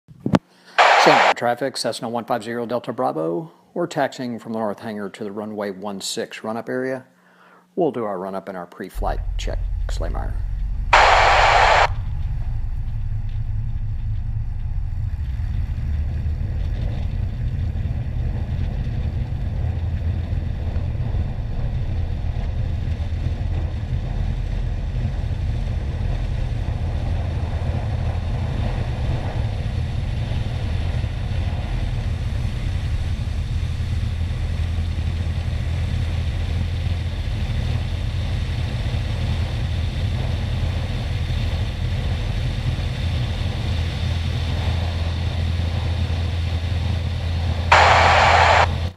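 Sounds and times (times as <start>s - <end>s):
small plane engine droning: 25.3s - 48.7s.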